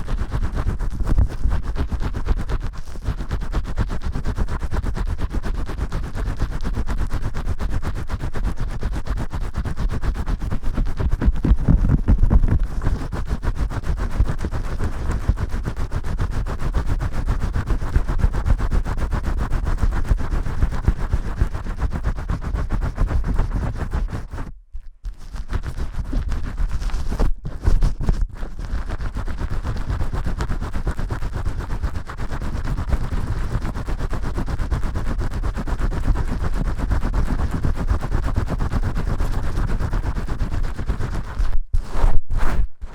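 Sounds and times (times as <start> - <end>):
shampoo lather scrubbed by hand: 0.0 - 24.5, 25.1 - 42.1.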